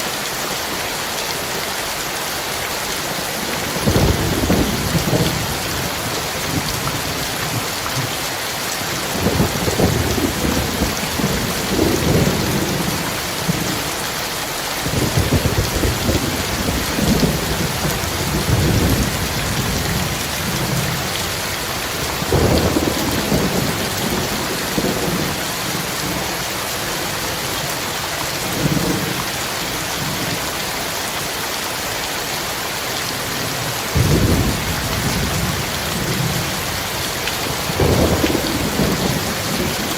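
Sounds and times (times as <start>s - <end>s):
heavy rain pouring: 0.0s - 39.9s
thunder rumbling: 3.8s - 7.7s, 9.1s - 13.7s, 14.8s - 26.2s, 34.0s - 39.9s.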